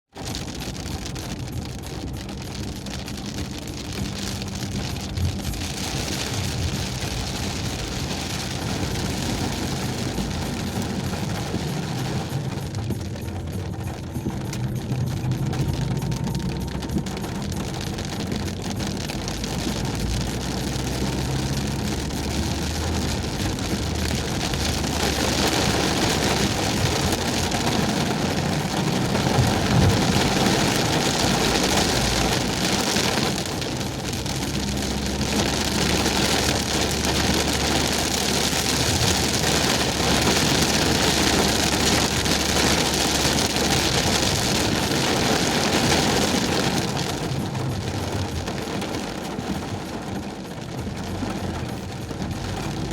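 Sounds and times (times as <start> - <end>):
car engine and tyres: 0.0 - 52.9
heavy rain falling: 0.1 - 52.9.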